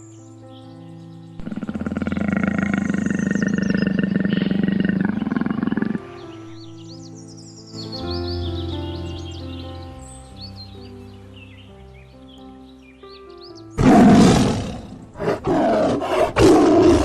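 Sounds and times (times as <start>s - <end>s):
soft background music: 0.0s - 17.0s
large animal roaring: 1.4s - 6.4s, 13.8s - 17.0s.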